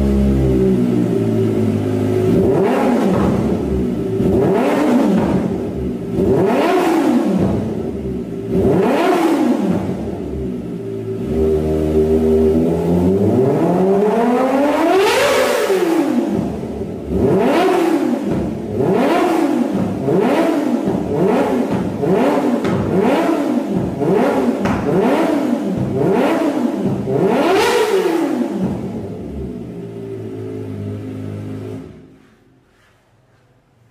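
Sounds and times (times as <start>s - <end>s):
motorcycle engine idling: 0.0s - 6.3s, 18.0s - 31.9s
motorcycle engine revving: 0.0s - 32.9s.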